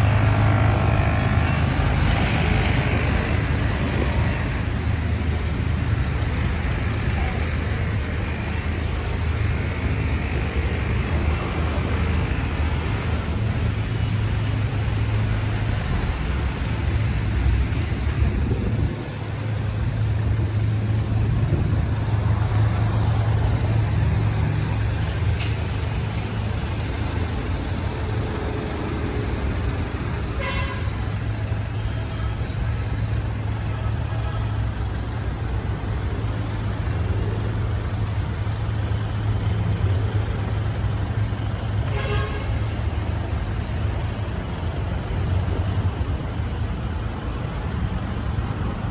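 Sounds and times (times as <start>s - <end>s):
traffic engines rumbling: 0.0s - 48.9s
vehicle horn toots: 30.4s - 31.0s, 41.9s - 42.6s.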